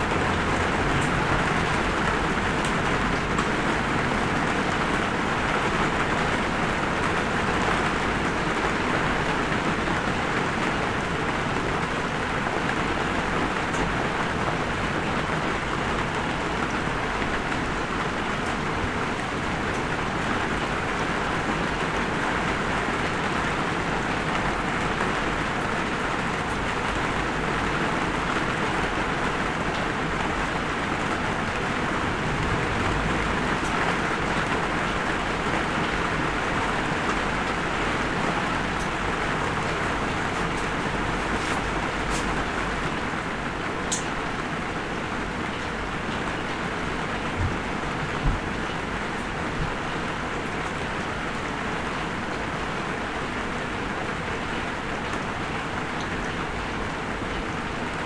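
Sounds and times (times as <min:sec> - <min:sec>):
light rain patter: 0:00.0 - 0:58.0
sharp raindrop ticks: 0:38.7 - 0:39.0, 0:43.8 - 0:44.2.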